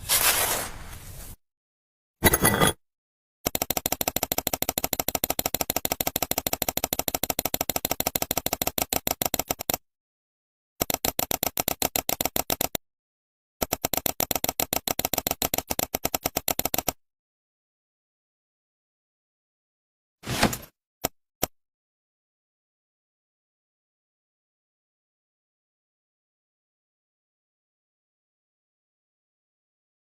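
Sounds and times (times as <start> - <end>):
rapid rattle of clicks: 3.5 - 9.8, 10.8 - 12.8, 13.6 - 17.0.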